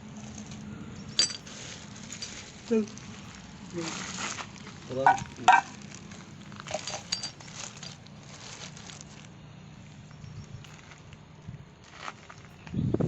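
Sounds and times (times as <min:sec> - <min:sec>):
metal tools clinking: 0:00.3 - 0:09.0.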